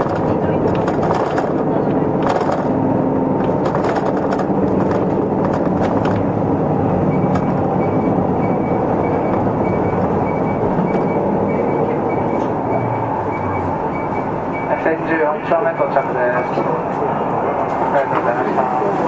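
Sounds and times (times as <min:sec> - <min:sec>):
rattles: 0:00.0 - 0:11.2
bus diesel engine running: 0:00.0 - 0:19.0.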